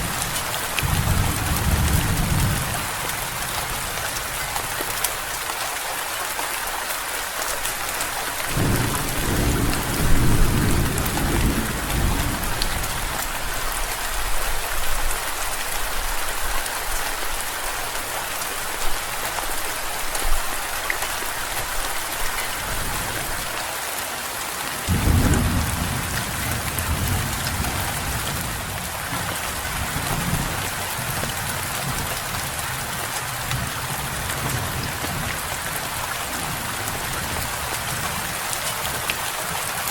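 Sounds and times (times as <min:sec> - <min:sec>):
thunder rumbling: 0:00.0 - 0:04.6, 0:08.5 - 0:13.2, 0:24.9 - 0:31.6
heavy rain: 0:00.0 - 0:39.9.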